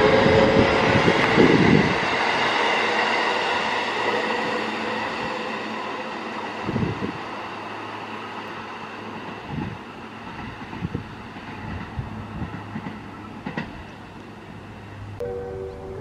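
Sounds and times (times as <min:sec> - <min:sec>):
electric train rumbling: 0:00.0 - 0:16.0
wheels clicking over rail joints: 0:07.9 - 0:15.8.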